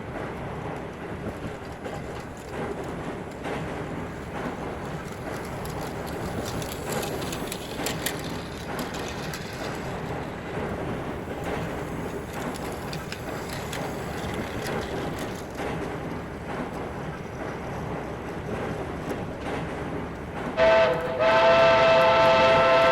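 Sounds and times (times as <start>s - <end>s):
clicks and rattles: 0.9s - 10.4s, 11.4s - 16.8s
toy train motor and wheel rumble: 4.6s - 10.4s, 11.0s - 16.2s.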